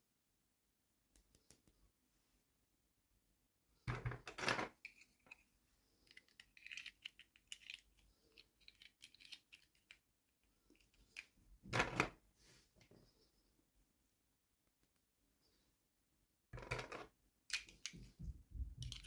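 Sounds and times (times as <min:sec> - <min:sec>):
toy packaging rustling: 0:04.6 - 0:11.4, 0:18.8 - 0:19.0
small toy pieces clicking: 0:06.0 - 0:10.0, 0:18.8 - 0:19.0.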